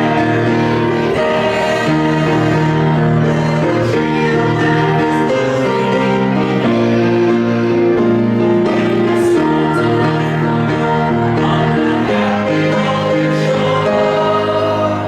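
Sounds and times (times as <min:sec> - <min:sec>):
congregation singing a hymn: 0:00.0 - 0:15.0
instrumental accompaniment: 0:00.0 - 0:15.0.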